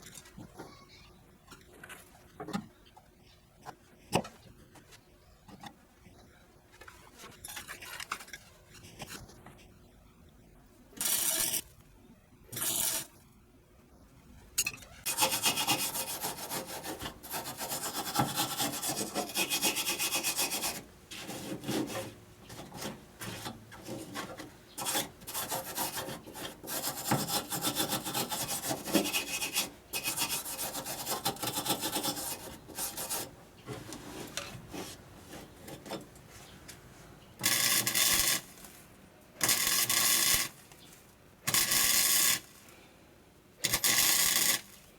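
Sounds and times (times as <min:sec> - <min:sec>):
hand sanding car bodywork: 0:15.1 - 0:35.5.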